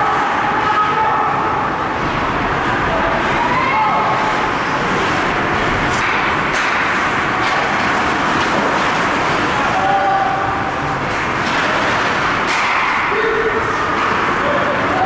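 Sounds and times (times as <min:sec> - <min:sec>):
distant shouting voices: 0:00.0 - 0:01.8, 0:09.6 - 0:10.9
ice rink noise: 0:00.0 - 0:15.0.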